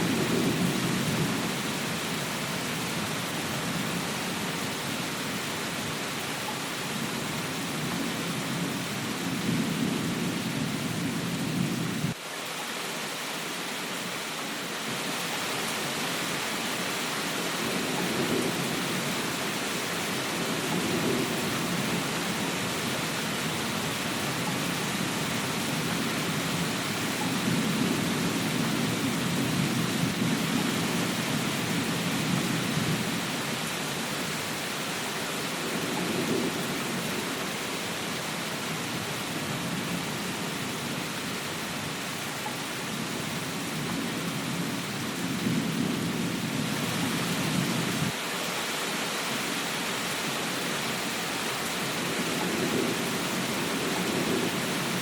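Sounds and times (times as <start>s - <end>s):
rain hiss: 0.0s - 55.0s.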